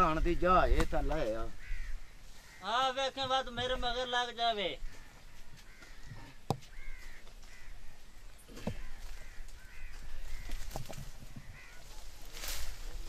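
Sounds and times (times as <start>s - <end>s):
bird calling: 1.4s - 3.8s, 4.6s - 12.3s.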